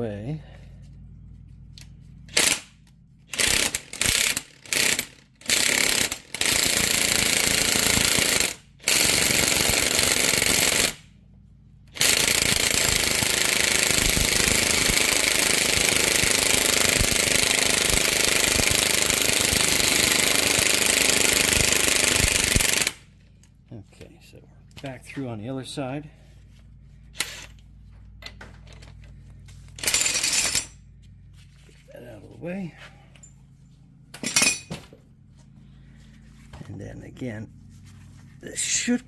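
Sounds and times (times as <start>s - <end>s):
impact wrench hammering: 2.3s - 11.0s, 11.9s - 23.1s, 27.2s - 27.6s, 29.8s - 30.8s, 34.2s - 35.0s.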